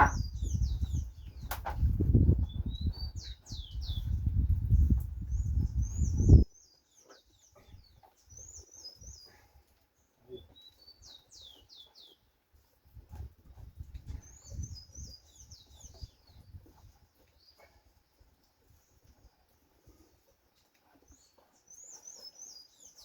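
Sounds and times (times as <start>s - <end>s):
small bird chirping: 0.0s - 9.4s, 10.0s - 12.3s, 14.1s - 17.6s, 20.9s - 23.0s.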